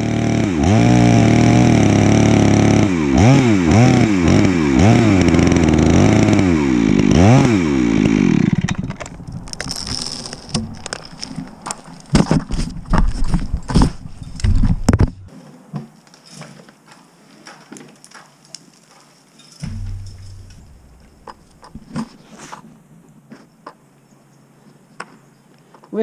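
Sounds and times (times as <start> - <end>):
chainsaw running: 0.0 - 11.4
sharp knocks and clatter: 8.6 - 15.3, 19.6 - 22.2.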